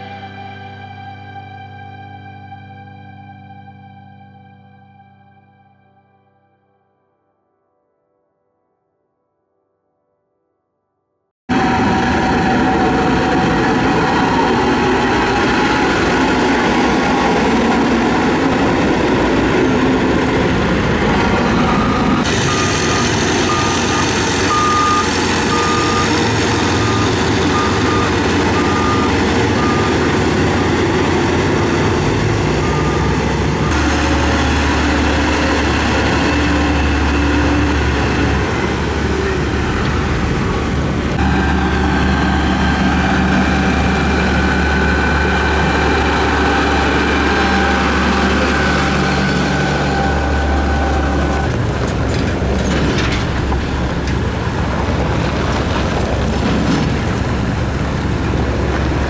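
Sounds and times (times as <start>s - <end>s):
reversing alarm beeping: 11.5s - 54.4s
heavy diesel machines running: 11.5s - 59.0s.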